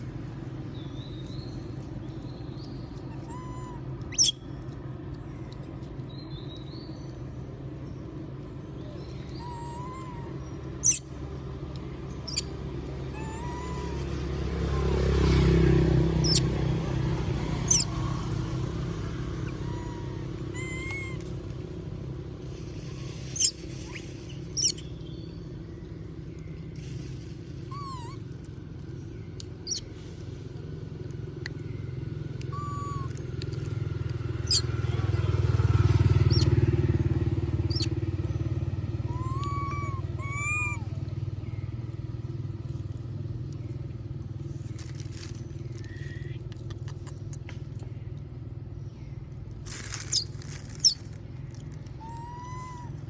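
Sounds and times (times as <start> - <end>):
low engine hum: 0.0 - 53.0
short soft calls: 12.2 - 18.8, 19.4 - 25.4, 26.5 - 29.0, 44.6 - 47.5, 49.6 - 53.0
sharp high chirps: 22.5 - 25.2.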